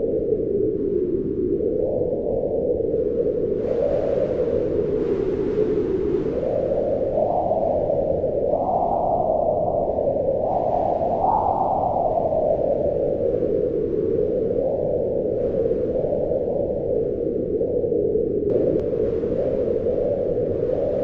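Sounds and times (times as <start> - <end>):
howling wind: 0.0 - 21.0.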